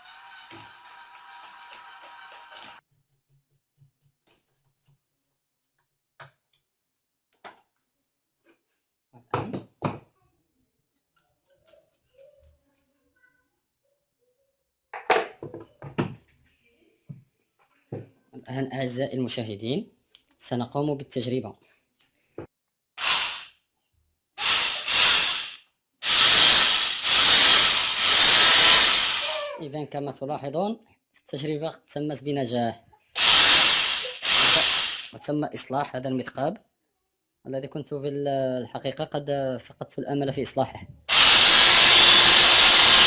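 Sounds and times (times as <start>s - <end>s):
rotary hammer drill motor running: 0.0s - 2.8s, 23.0s - 23.5s, 24.4s - 29.5s, 33.2s - 35.2s, 41.1s - 43.0s.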